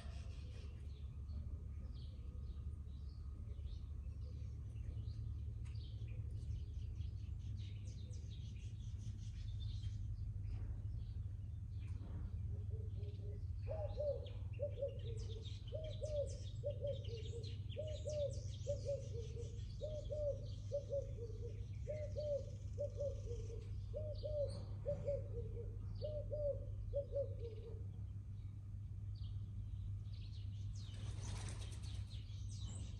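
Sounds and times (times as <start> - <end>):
small birds chirping: 0.0 - 32.9
dove cooing: 12.6 - 27.9.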